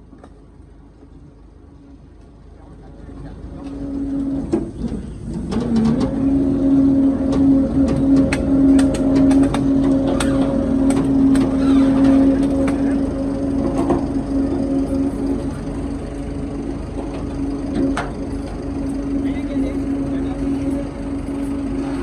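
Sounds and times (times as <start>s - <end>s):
electric power tool motor running: 5.5s - 22.0s.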